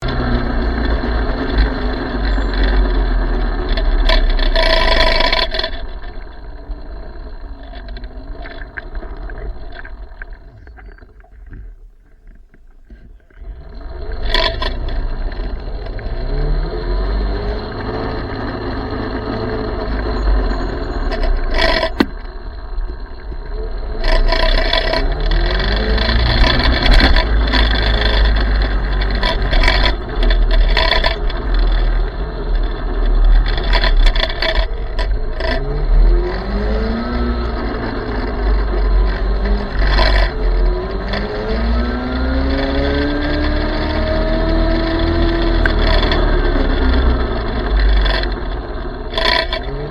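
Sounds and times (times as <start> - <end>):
electric motorcycle motor whine: 0.0 - 49.9
wind rumble on microphone: 0.0 - 49.9
tyre scraping: 24.1 - 31.7.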